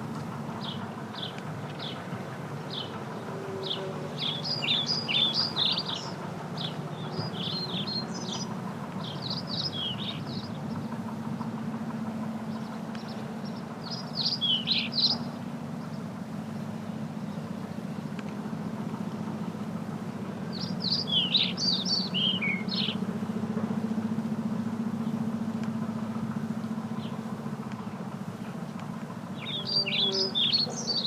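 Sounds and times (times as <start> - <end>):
steady low hum: 0.0 - 31.0
small birds chirping: 0.6 - 11.0, 12.5 - 18.1, 20.5 - 23.0, 27.0 - 31.0.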